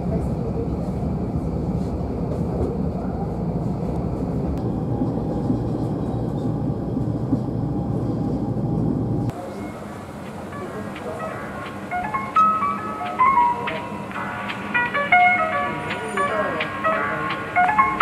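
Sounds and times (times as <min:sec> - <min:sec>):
train rumbling inside carriage: 0:00.0 - 0:18.0.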